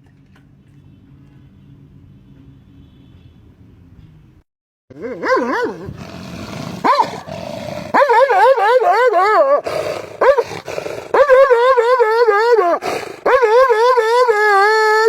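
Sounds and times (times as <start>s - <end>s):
animal howling with wavering pitch: 7.9s - 9.6s, 11.2s - 15.0s.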